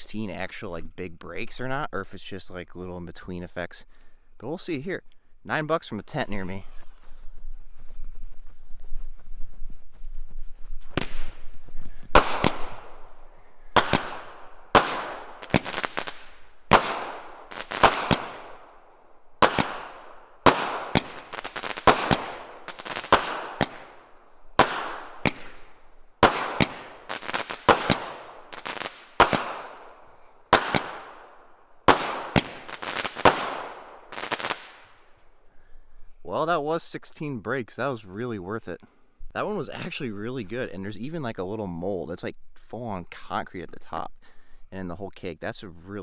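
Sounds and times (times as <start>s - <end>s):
fireworks shots: 10.9s - 35.1s.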